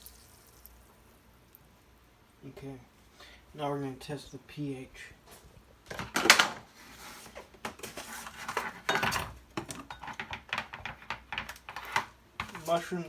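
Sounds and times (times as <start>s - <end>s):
kitchen items clattering: 5.9s - 13.0s.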